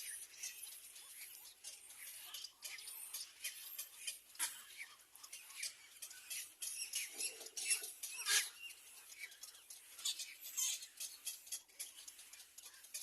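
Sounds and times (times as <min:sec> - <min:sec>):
young birds squeaky chirping: 0:05.6 - 0:11.9.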